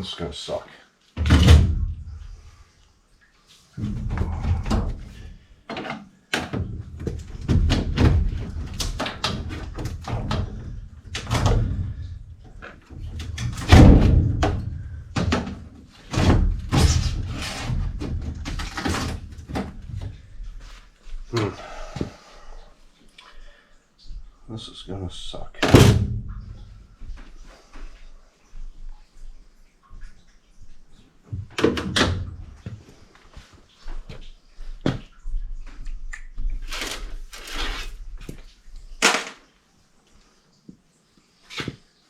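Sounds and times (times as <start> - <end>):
coil thumping and scraping: 3.8 - 20.6.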